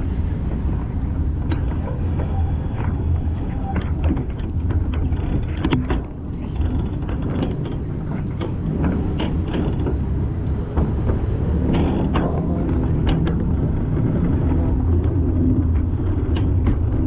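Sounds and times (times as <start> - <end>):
vehicle low rumble: 0.0 - 17.0
short clicks and creaks: 1.4 - 17.0.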